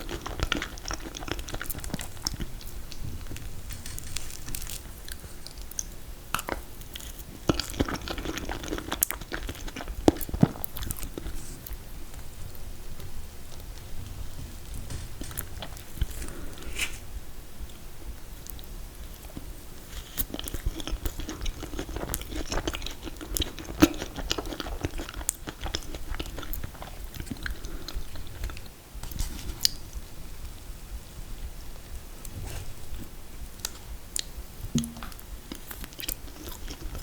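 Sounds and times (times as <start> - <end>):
person chewing: 0.0 - 11.9, 18.5 - 28.7, 33.6 - 37.0
mouth clicks and smacks: 33.6 - 35.2.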